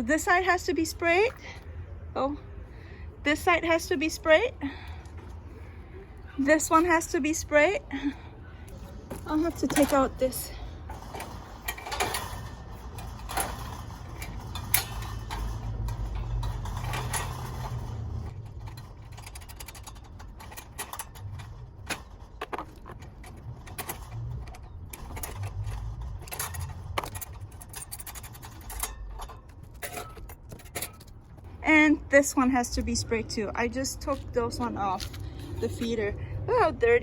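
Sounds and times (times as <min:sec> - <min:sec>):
metal cage clicks and rattles: 0:08.7 - 0:31.5.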